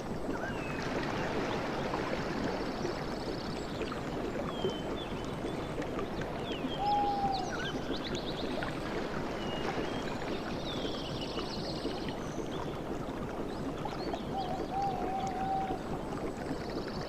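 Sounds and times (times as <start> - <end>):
water lapping and gurgling: 0.0 - 17.0
bird wavering whistle: 6.8 - 7.7, 14.4 - 15.8.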